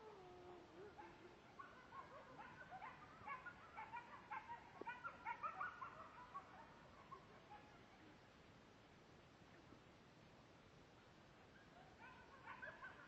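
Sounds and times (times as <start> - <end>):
wolves yipping and barking: 0.9 - 7.8, 11.6 - 13.0.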